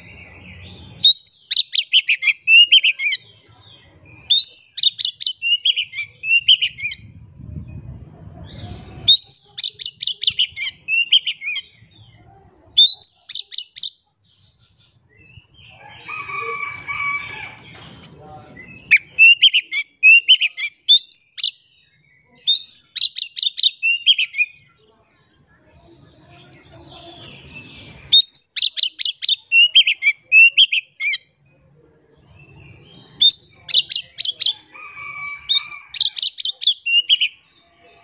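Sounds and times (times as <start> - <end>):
bird singing whistled notes: 33.2 - 34.4.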